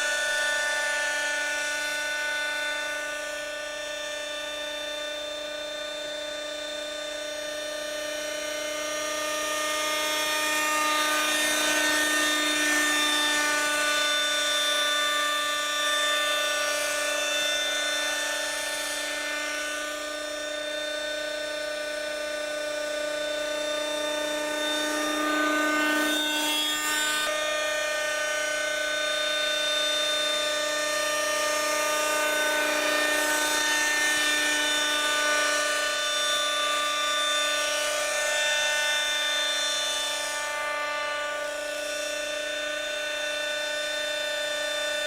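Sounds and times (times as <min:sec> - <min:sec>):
model helicopter engine whine: 0:00.0 - 0:45.0.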